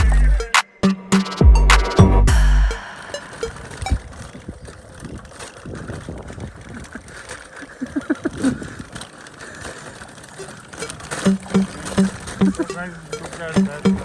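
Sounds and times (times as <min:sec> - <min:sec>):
short pitched notes: 0:00.0 - 0:04.1
bicycle tyre and rattle noise: 0:03.3 - 0:14.0
clicks: 0:10.4 - 0:14.0.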